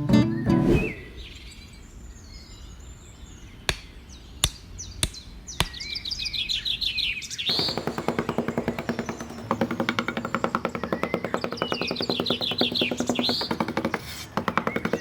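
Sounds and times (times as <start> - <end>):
guitar music: 0.0 - 0.6
small birds chirping: 0.2 - 15.0
sharp taps: 7.5 - 15.0.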